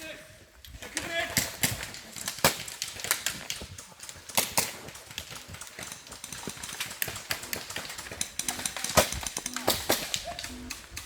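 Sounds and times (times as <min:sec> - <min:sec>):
airsoft gun shots: 0:08.4 - 0:10.8.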